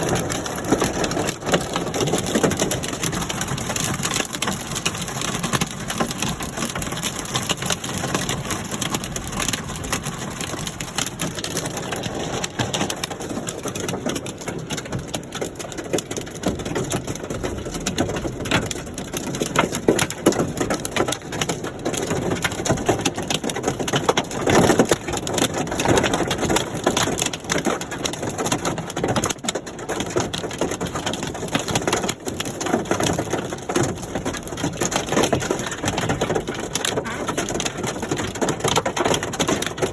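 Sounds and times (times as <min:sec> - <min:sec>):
hailstones crackling on hard surfaces: 0:00.0 - 0:39.9.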